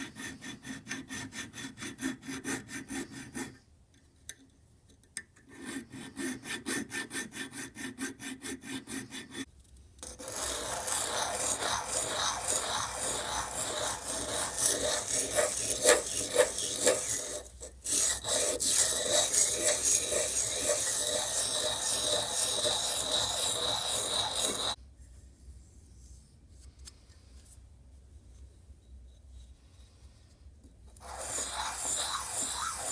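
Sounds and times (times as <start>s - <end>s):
filing strokes on metal: 0.0s - 3.6s, 5.5s - 24.8s, 31.0s - 32.9s
abrasive tool rasping with whine: 5.6s - 24.8s, 31.0s - 32.9s.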